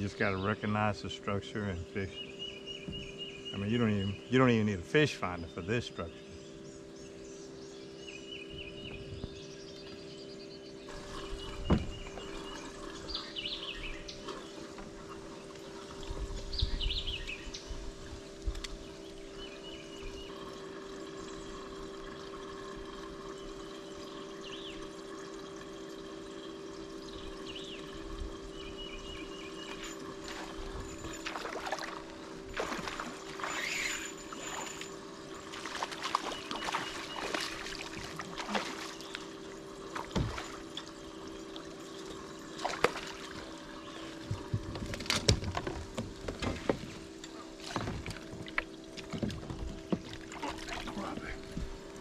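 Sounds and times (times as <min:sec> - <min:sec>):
steady hum: 0:00.0 - 0:52.0
water splashing and trickling: 0:10.9 - 0:52.0
knocks on boat: 0:11.4 - 0:12.4, 0:40.0 - 0:40.5, 0:44.2 - 0:46.9, 0:47.6 - 0:50.8.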